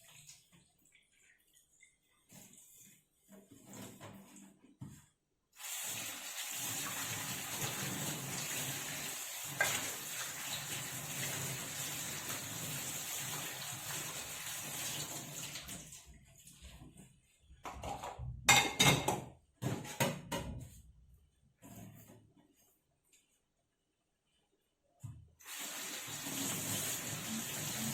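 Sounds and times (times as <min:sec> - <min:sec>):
tap water running into pot: 0:05.6 - 0:15.9, 0:25.4 - 0:27.9.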